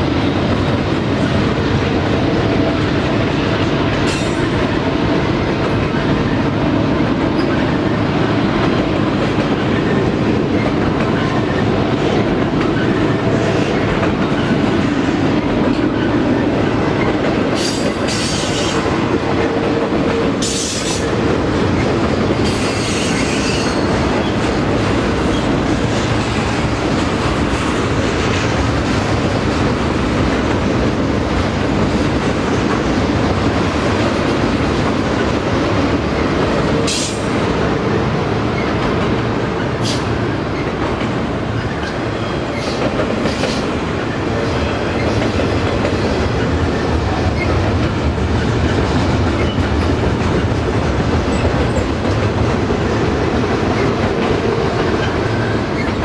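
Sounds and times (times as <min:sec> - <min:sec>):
freight train rumbling past: 0:00.0 - 0:56.0
train wheel squeals: 0:04.0 - 0:04.6, 0:17.6 - 0:18.9, 0:20.4 - 0:21.1, 0:22.4 - 0:24.4, 0:41.6 - 0:43.7, 0:44.3 - 0:47.7, 0:49.4 - 0:49.9, 0:54.8 - 0:56.0.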